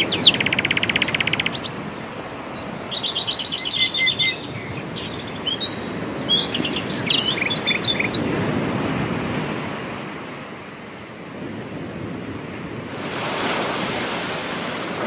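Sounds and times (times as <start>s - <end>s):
small bird chirping rapidly: 0.0s - 8.3s
surf washing on a beach: 0.0s - 15.0s.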